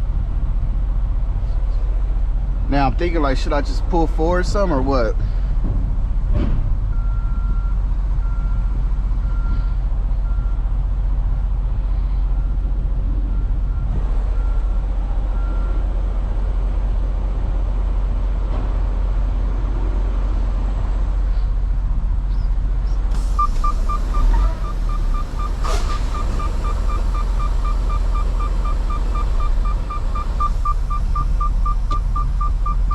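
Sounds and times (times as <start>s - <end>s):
diesel truck engine idling: 6.9s - 32.9s
high warning beeps: 23.4s - 32.9s.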